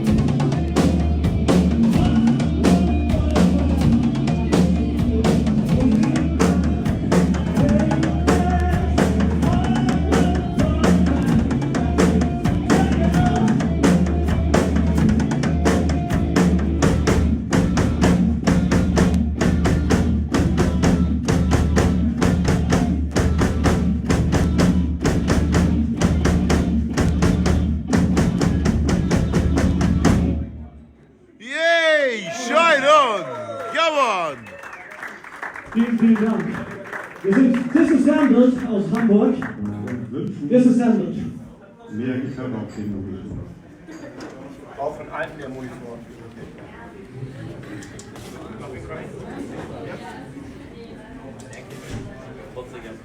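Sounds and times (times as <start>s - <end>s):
drum kit beat: 0.0s - 30.4s
heavy bass line: 0.0s - 30.5s.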